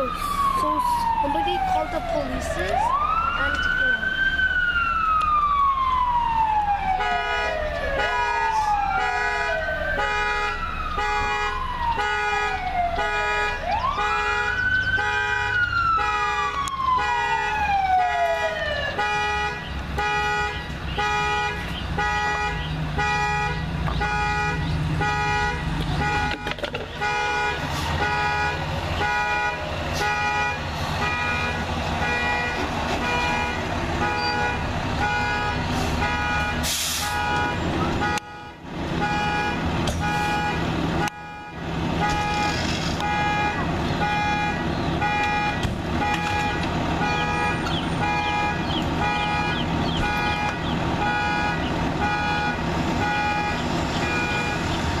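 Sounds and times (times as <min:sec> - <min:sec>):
vehicle warning beeper: 0:13.0 - 0:54.8.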